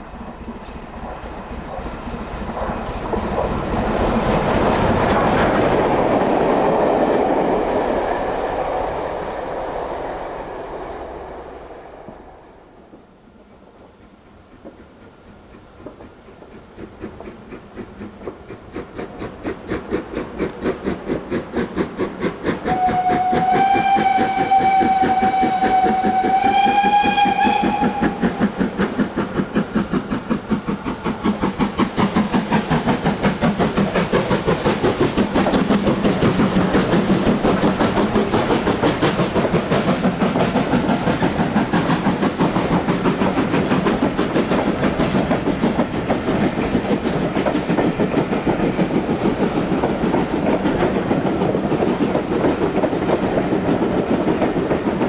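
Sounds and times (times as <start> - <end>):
steam locomotive exhaust beats: 0.0 - 55.0
steam whistle blast: 22.7 - 28.3.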